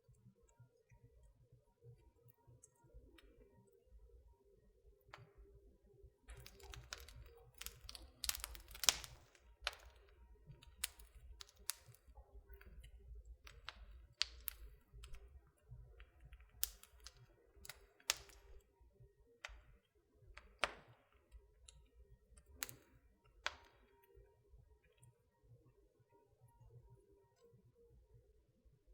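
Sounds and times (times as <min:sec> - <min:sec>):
wood fire crackling and popping: 0:06.3 - 0:18.8, 0:19.4 - 0:24.0.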